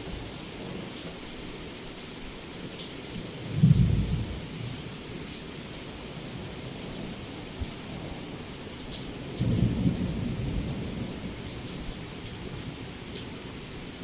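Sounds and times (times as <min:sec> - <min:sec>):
heavy rain on a window: 0:00.0 - 0:14.0
low rumble of thunder: 0:03.2 - 0:13.7.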